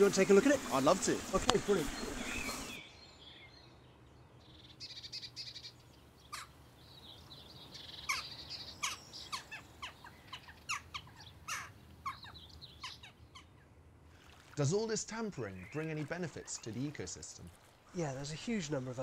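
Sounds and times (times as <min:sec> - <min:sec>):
high bird trills: 0:01.5 - 0:03.4, 0:04.5 - 0:13.7.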